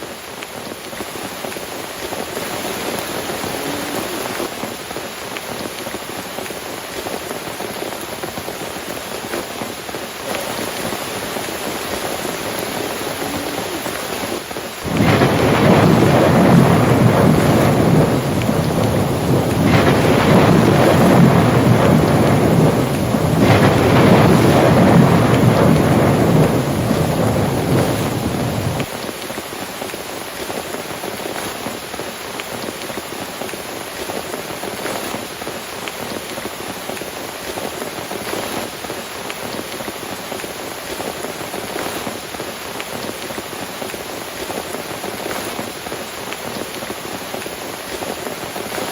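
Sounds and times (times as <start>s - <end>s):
heavy rain: 0.0s - 48.9s
thunder rumbling: 10.6s - 28.9s.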